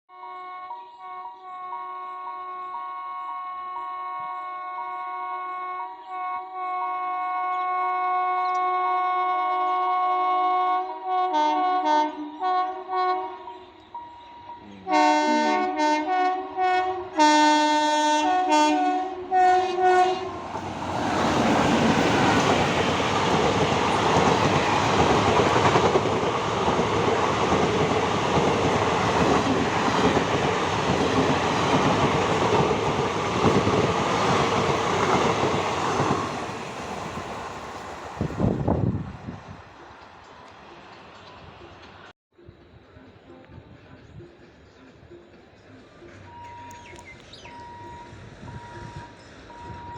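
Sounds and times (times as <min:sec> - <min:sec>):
train horn blasts: 0:00.1 - 0:20.5
train rushing past: 0:08.7 - 0:49.9.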